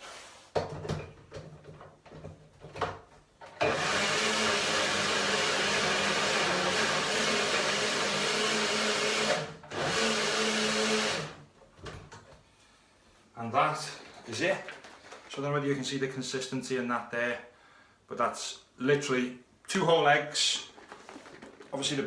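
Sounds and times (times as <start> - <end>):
blender running: 3.6 - 11.4.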